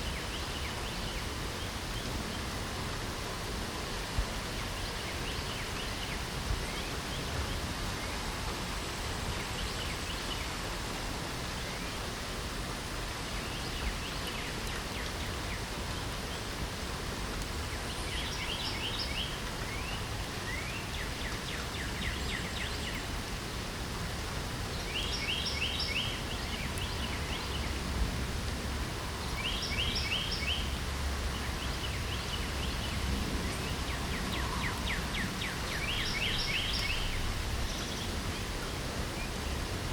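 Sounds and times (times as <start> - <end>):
light rain falling: 0.0 - 39.9
songbird singing trilled phrases: 29.4 - 30.8, 31.6 - 38.2.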